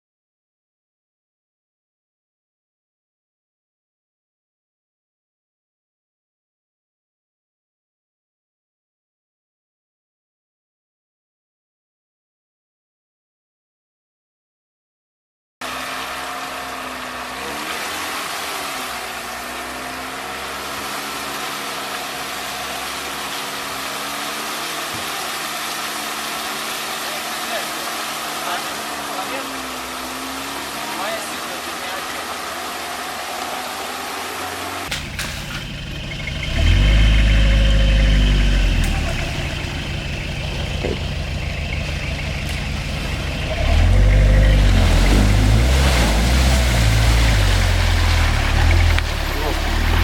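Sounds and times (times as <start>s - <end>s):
off-road vehicle engine running: 15.6s - 50.0s.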